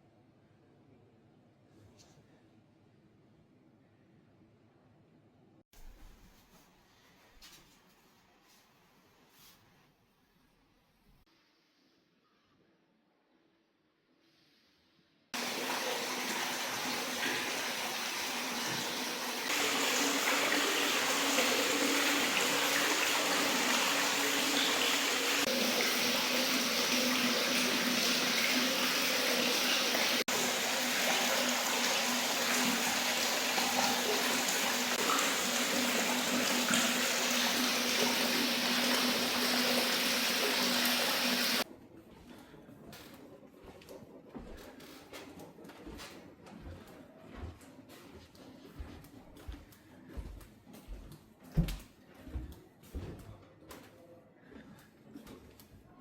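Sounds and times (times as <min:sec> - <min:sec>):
water running and pouring: 0:15.4 - 0:41.6.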